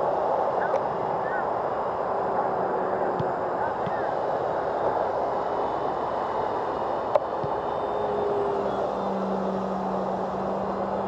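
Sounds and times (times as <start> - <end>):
steady hum: 0.0 - 11.0
steady rushing noise: 0.0 - 11.0
model airplane motor and propeller: 1.8 - 11.0.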